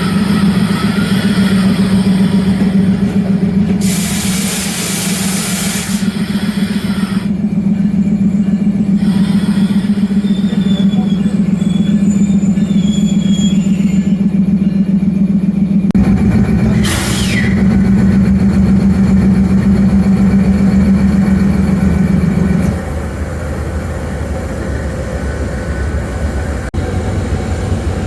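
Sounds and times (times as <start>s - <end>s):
diesel train engine drone: 0.0s - 28.0s
burst of hissing: 3.8s - 7.2s.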